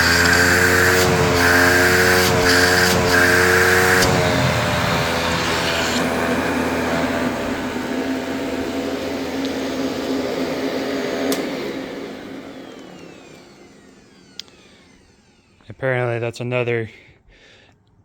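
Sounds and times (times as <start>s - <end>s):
vacuum cleaner motor running: 0.0s - 15.7s
switch click: 11.2s - 11.5s.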